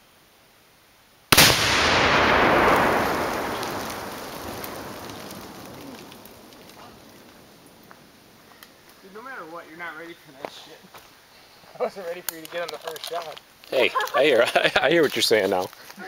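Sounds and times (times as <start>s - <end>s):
explosive target blast: 1.3s - 6.5s
faint ticks: 5.0s - 9.0s.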